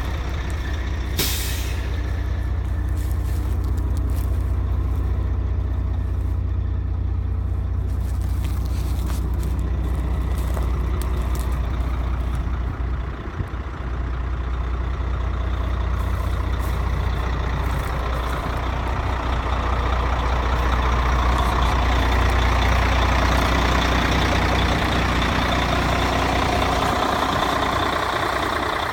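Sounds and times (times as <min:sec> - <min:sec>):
diesel truck engine running: 0:00.0 - 0:28.9.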